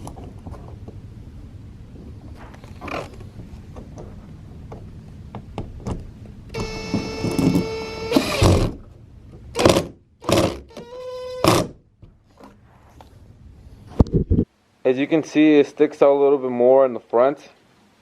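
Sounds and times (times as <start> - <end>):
cordless drill motor whine: 6.5 - 8.6.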